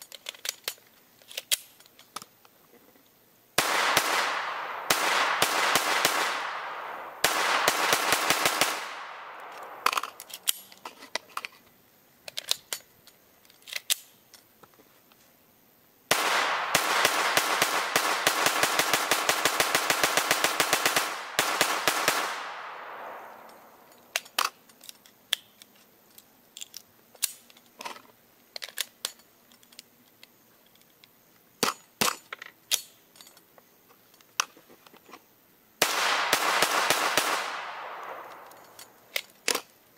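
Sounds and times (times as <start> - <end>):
rifle handling clicks: 0.0 - 2.6, 8.9 - 11.6, 12.3 - 14.7, 22.2 - 31.2, 37.1 - 39.8
rifle gunshots: 3.6 - 10.5, 16.1 - 23.9, 35.8 - 39.0.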